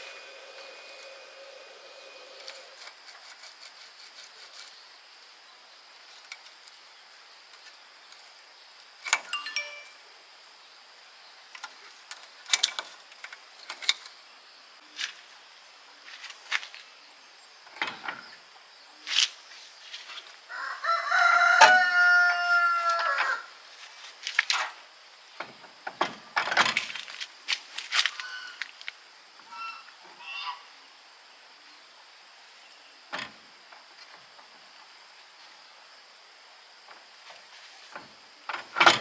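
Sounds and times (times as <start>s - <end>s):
rooster crowing: 20.5s - 23.5s.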